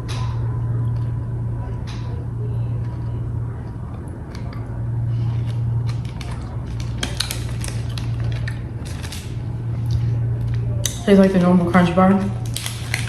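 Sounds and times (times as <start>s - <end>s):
steady low hum: 0.0s - 13.0s
chewing crunchy chocolate bar: 2.0s - 13.0s.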